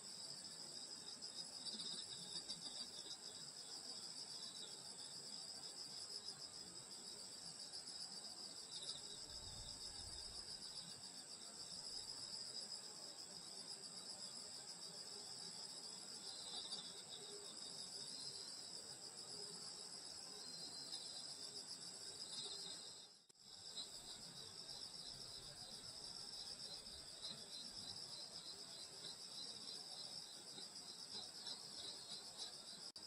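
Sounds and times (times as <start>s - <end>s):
crickets chirring: 0.1s - 33.0s.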